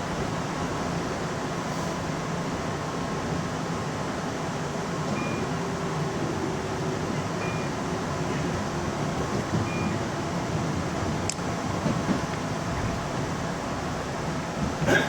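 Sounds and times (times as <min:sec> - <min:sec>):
train wheels rumbling on rail: 0:00.0 - 0:15.0
short high beeps: 0:07.4 - 0:07.7.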